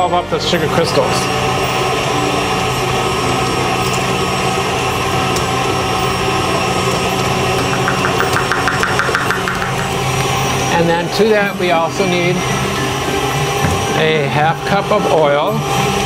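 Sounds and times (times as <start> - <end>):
electric stand mixer running: 0.6 - 16.0
fast rhythmic ticking: 6.9 - 10.8.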